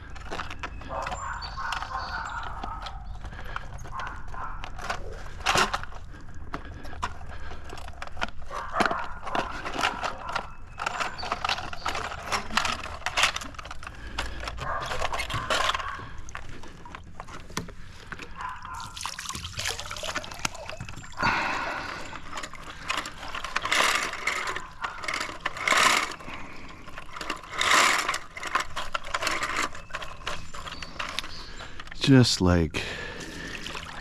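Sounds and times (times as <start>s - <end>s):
brush scraping pool cleaner: 6.7s - 31.8s.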